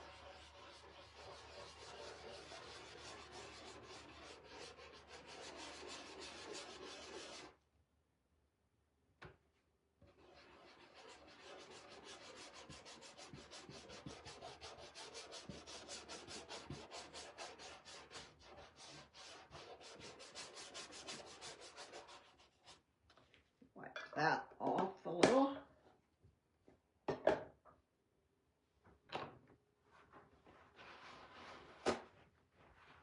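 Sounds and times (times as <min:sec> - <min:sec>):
wax rubbed into wood: 0:00.0 - 0:07.5, 0:10.1 - 0:22.8.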